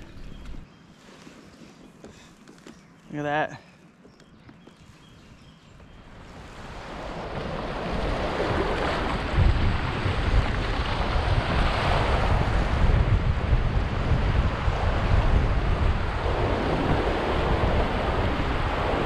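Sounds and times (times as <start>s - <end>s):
wind buffeting microphone: 0.0s - 0.7s, 4.2s - 19.0s.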